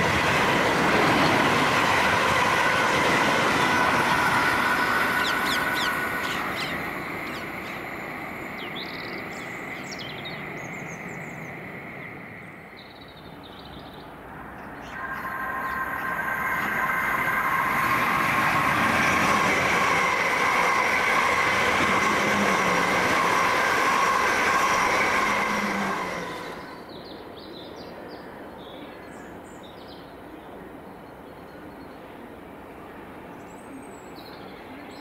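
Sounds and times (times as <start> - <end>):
train whine: 0.0 - 27.4
wheels rushing on rail: 0.0 - 27.4
train passing at speed: 0.0 - 35.0.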